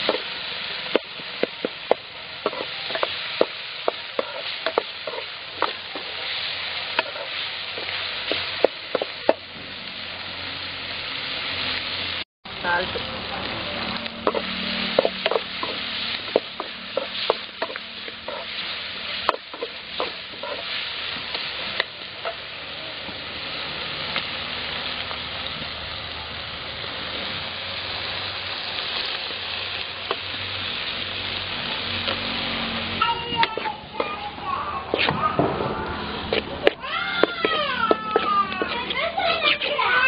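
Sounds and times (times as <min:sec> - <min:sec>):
steel spoon scraping a pan: 0:00.0 - 0:09.4, 0:13.8 - 0:22.5, 0:36.2 - 0:40.0
vegetables sizzling in oil: 0:00.0 - 0:40.0.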